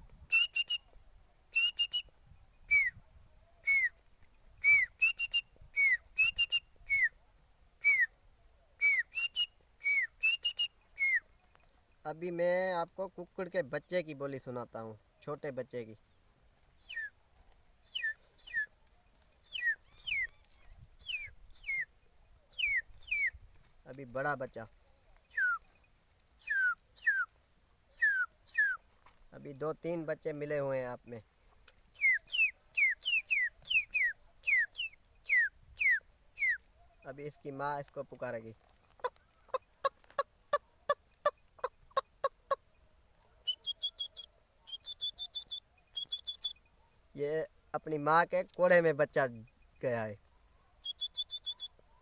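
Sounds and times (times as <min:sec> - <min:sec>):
man whistling chick peeps: 0:00.2 - 0:04.0, 0:04.6 - 0:07.2, 0:07.8 - 0:08.2, 0:08.8 - 0:11.4, 0:16.8 - 0:17.2, 0:17.8 - 0:18.8, 0:19.4 - 0:23.4, 0:25.3 - 0:25.8, 0:26.4 - 0:27.3, 0:27.9 - 0:28.8, 0:31.9 - 0:36.7, 0:43.4 - 0:46.6, 0:50.8 - 0:52.0
man imitating chick peeps: 0:39.0 - 0:42.6
man imitating hen clucks: 0:39.0 - 0:42.6.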